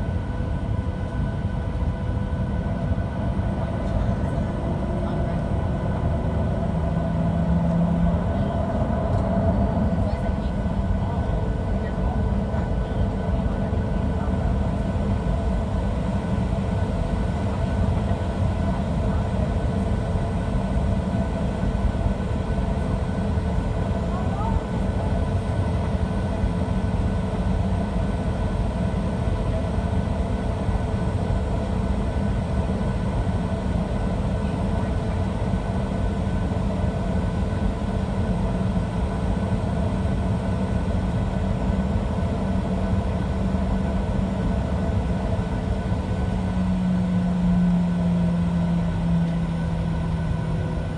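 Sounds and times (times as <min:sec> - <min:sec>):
aircraft cabin engine hum: 0:00.0 - 0:50.9.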